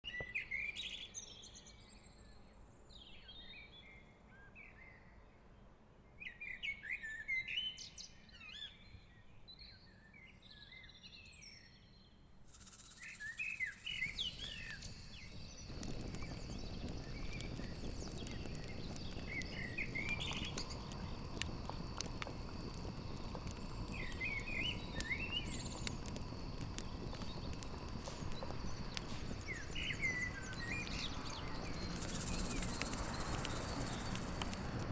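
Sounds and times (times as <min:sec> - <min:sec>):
small birds chirping: 0:12.5 - 0:34.8
campfire crackling and popping: 0:12.5 - 0:34.9
crickets trilling: 0:12.5 - 0:34.9.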